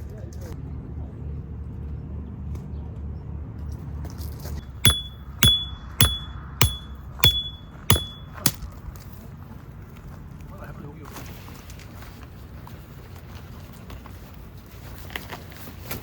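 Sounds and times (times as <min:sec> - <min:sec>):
hammer striking metal peg: 0:04.9 - 0:08.6.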